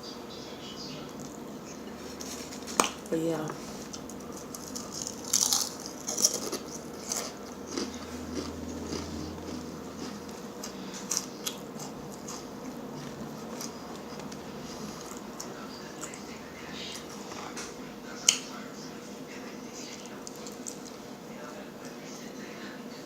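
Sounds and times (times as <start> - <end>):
crunchy eating: 0.3 - 22.8
chewing with small clicks: 3.8 - 18.5, 19.8 - 21.0.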